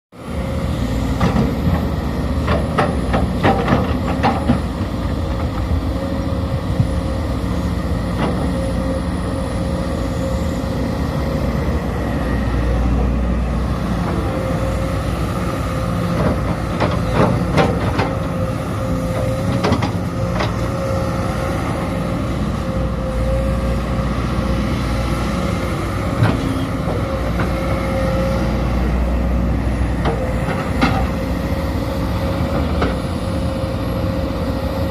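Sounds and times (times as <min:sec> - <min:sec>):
excavator diesel engine whining: 0:00.2 - 0:34.9.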